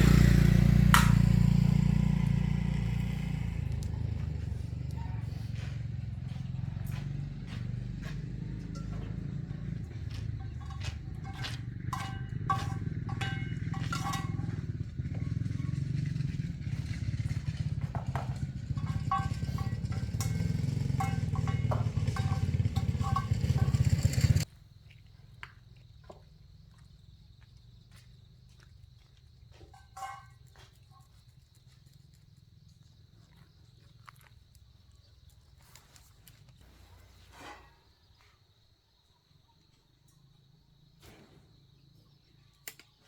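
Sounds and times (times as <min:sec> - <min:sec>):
engine running: 0:00.0 - 0:24.5
scattered knocks: 0:08.6 - 0:24.4.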